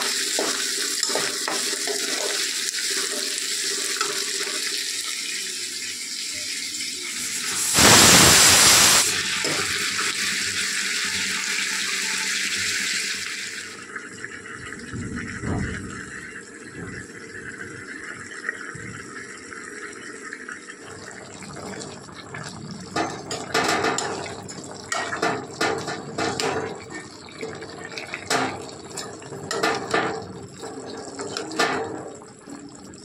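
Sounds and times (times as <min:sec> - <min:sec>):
food sizzling in a pan: 0:00.0 - 0:13.8.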